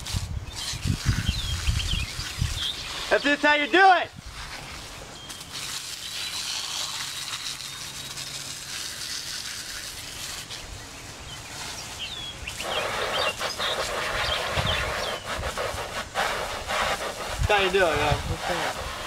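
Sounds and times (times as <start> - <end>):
water spraying onto dirt bike: 0.0 - 19.0
bird chirps: 0.4 - 3.5, 4.6 - 8.2, 10.2 - 15.4.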